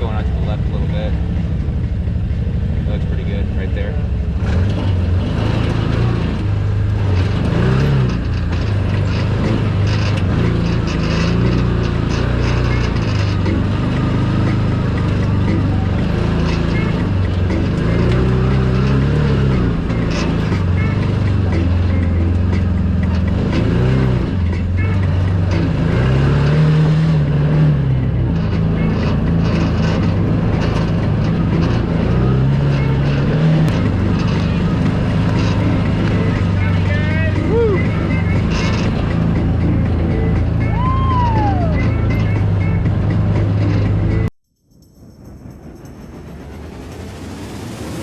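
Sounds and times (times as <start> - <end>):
utility vehicle engine running: 0.0 - 48.0.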